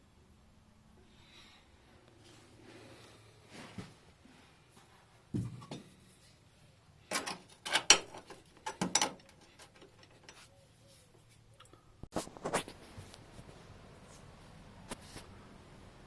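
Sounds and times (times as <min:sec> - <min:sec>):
hard objects knocking and scraping: 0:07.1 - 0:10.5.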